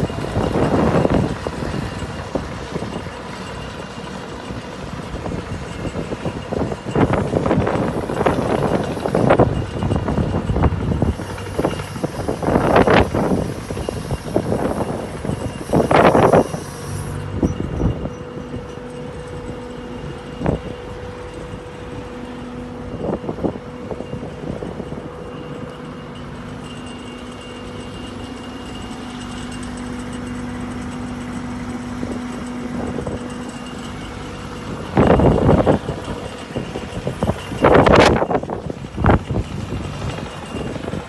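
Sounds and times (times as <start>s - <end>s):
engine humming: 0.0s - 41.0s
engine knocking: 26.5s - 41.0s.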